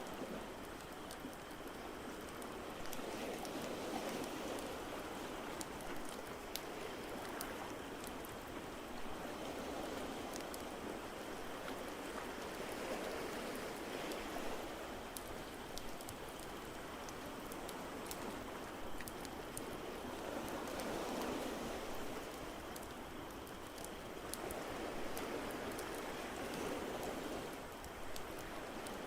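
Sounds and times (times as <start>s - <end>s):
wood fire crackling: 0.6s - 9.1s, 15.1s - 29.0s.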